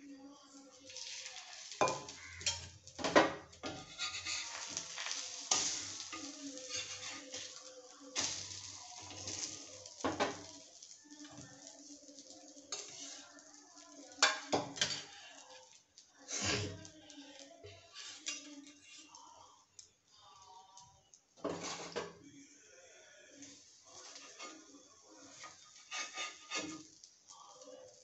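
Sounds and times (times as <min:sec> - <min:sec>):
bread sizzling in oil: 0:00.0 - 0:22.1, 0:23.2 - 0:28.0
metal spatula scraping pan: 0:01.0 - 0:02.9, 0:03.6 - 0:09.7, 0:12.7 - 0:13.3, 0:16.3 - 0:16.8, 0:17.6 - 0:19.1, 0:24.0 - 0:27.0.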